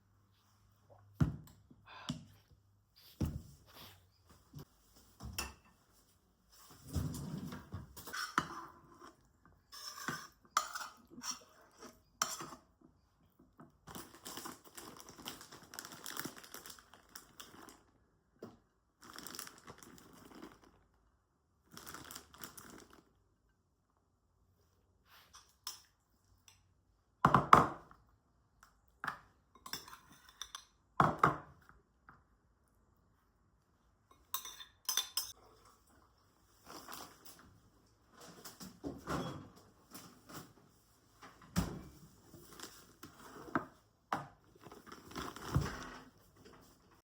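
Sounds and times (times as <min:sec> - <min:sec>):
crinkling and rustling: 0:13.9 - 0:17.9, 0:36.5 - 0:47.0.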